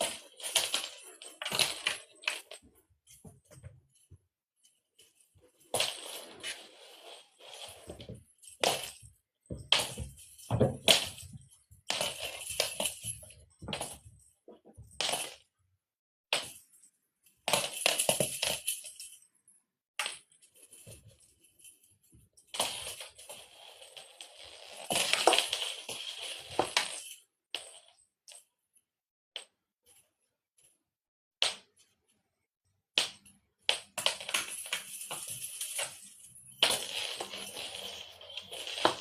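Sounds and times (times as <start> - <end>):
cat toy jingling and rattling: 34.3 - 39.0.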